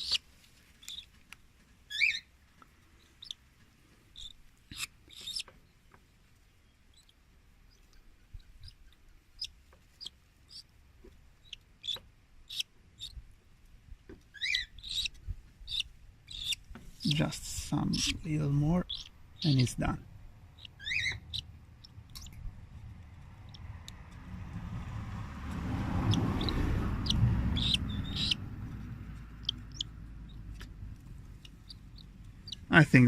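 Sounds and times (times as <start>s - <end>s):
bird chick begging chirps: 0.0s - 0.2s, 0.8s - 1.1s, 1.9s - 2.3s, 3.0s - 3.4s, 4.1s - 5.5s, 11.4s - 13.2s, 14.3s - 22.5s, 26.0s - 28.6s, 29.4s - 32.8s.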